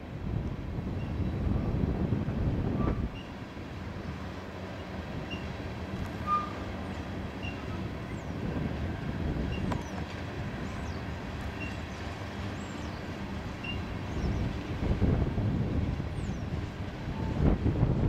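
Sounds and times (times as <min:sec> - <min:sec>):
steel wheels rumbling on rails: 0:00.5 - 0:18.0
brief wheel squeal: 0:02.8 - 0:03.4, 0:04.8 - 0:08.4, 0:09.5 - 0:10.0, 0:10.7 - 0:12.0, 0:13.6 - 0:14.4.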